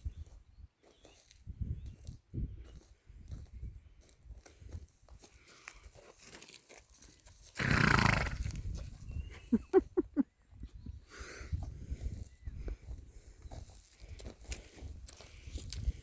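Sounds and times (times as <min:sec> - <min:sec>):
horse snorting: 0:07.6 - 0:08.6.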